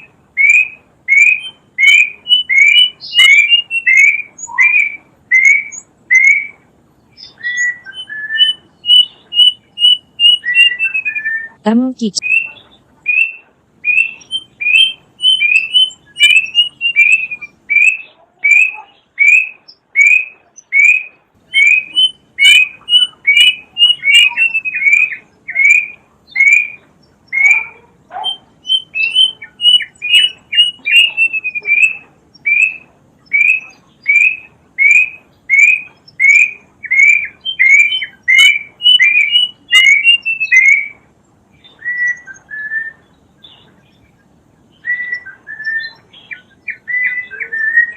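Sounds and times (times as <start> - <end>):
cuckoo calling: 0.0 - 44.0, 44.6 - 47.9.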